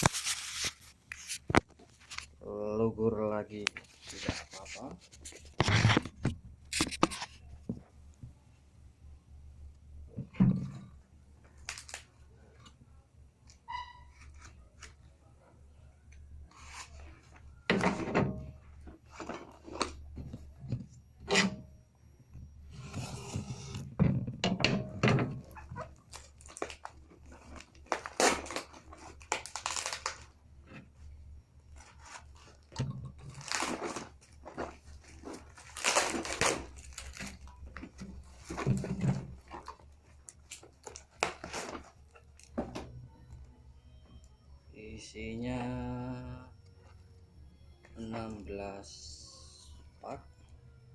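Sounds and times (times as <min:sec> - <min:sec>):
packaging rustling and tearing: 0:00.0 - 0:02.3, 0:11.6 - 0:12.1, 0:25.7 - 0:30.4, 0:31.8 - 0:42.6.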